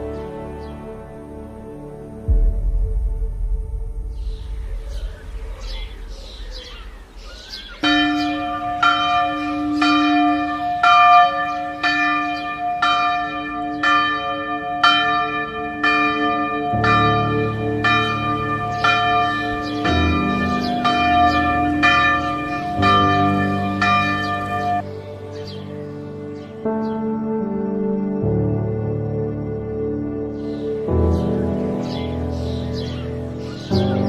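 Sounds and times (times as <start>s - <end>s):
bells ringing rapidly: 7.8s - 24.8s.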